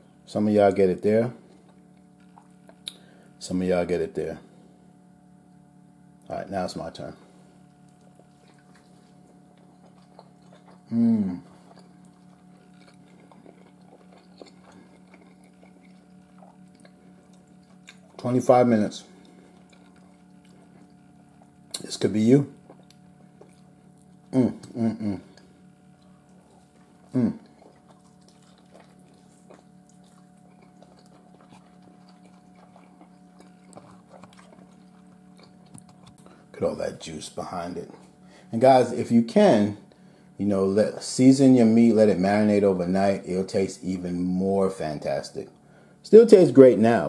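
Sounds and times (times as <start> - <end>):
low hum: 0.0 - 47.0
person chewing food: 1.4 - 3.4, 7.3 - 36.6, 37.7 - 38.5.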